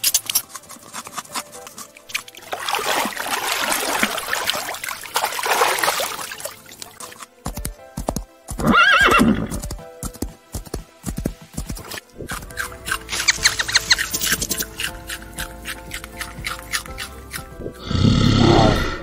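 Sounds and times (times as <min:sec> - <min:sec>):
background music: 0:00.0 - 0:19.0
hoofbeats: 0:00.0 - 0:19.0
horse whinnying: 0:08.6 - 0:09.6.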